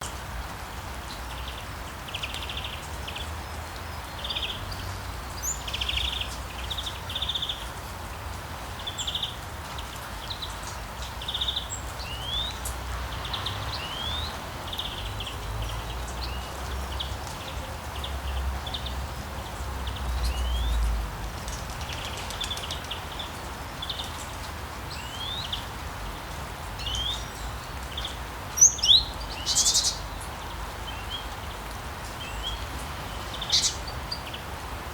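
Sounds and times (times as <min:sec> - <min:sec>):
small birds trilling and chirping: 0:00.0 - 0:34.9.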